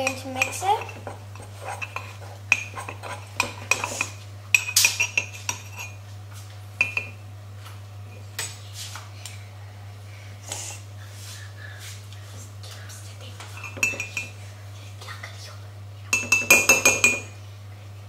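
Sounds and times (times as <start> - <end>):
steady low hum: 0.0 - 18.0
spoon clinking in a mug: 13.6 - 14.3, 16.2 - 17.3.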